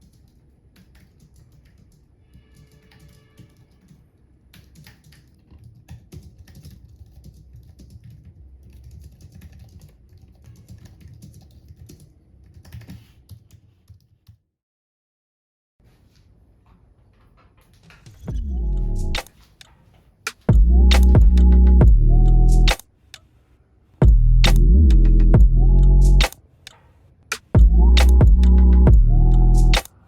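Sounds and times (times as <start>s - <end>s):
steady low hum: 20.5s - 22.8s, 24.0s - 26.3s, 27.5s - 29.8s.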